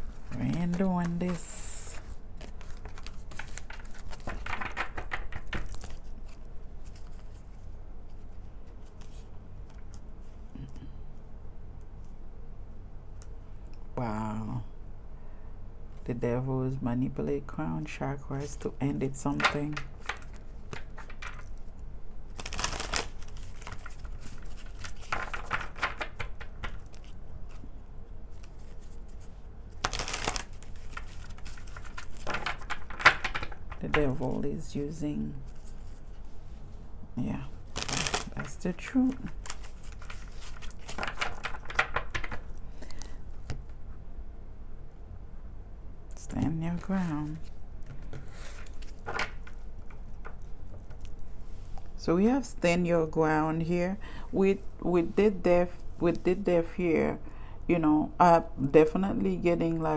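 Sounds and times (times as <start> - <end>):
cards being shuffled: 0.0 - 10.4, 19.2 - 21.7, 22.3 - 34.4, 37.6 - 43.8, 46.2 - 51.9
steady low hum: 0.0 - 59.9.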